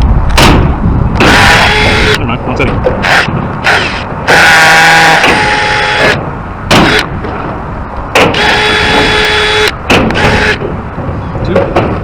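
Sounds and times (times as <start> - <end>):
power drill drilling into concrete: 3.0 - 6.2.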